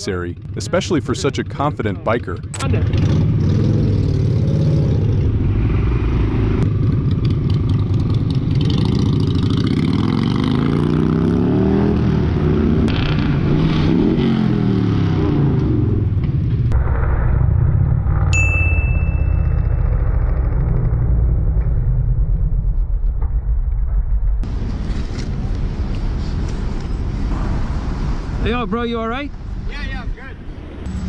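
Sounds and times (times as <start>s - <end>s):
motorcycle engine revving: 0.4s - 16.7s, 18.0s - 22.3s.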